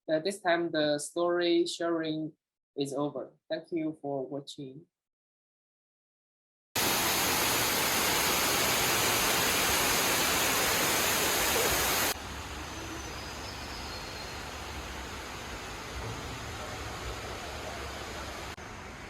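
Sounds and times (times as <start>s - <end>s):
steady hiss: 6.8s - 19.0s.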